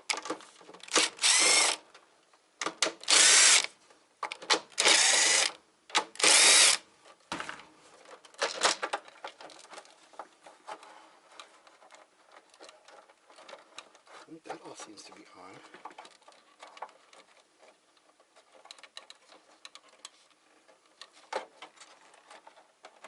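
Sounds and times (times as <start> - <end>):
clicks and rattles of handling: 0.0 - 3.1, 3.9 - 4.8, 7.0 - 23.0
power drill motor whine: 0.9 - 1.8, 3.1 - 3.7, 4.8 - 5.5, 6.2 - 6.8.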